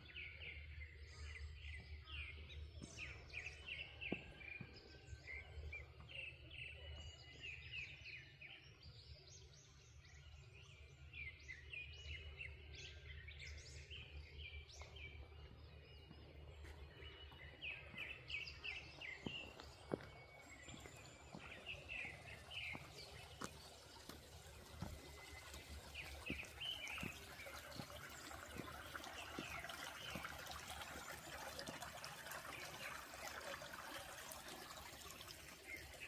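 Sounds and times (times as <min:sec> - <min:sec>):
small birds chirping and singing: 0:00.0 - 0:36.0.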